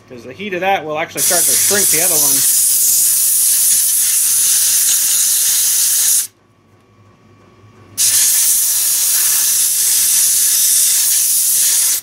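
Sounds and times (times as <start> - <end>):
heat tool blowing hiss: 1.2 - 6.3, 8.0 - 12.0.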